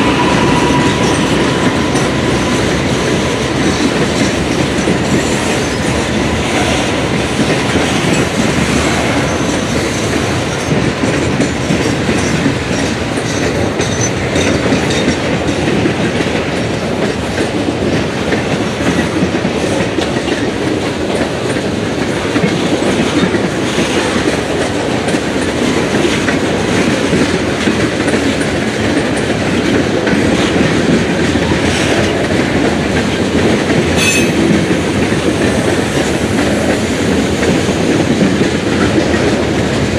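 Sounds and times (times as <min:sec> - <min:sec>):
freight cars rumbling past: 0:00.0 - 0:11.2.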